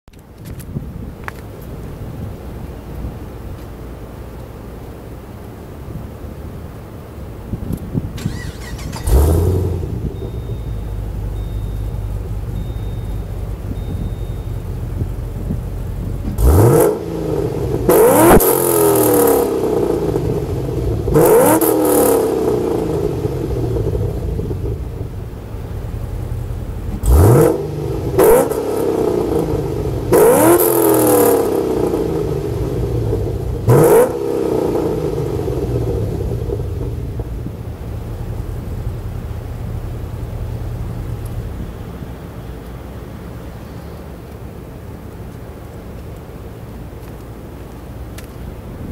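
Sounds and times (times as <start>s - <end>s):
car engine idling rumble: 0.1s - 48.9s
engine revving: 8.2s - 12.0s, 16.2s - 24.3s, 26.9s - 36.8s.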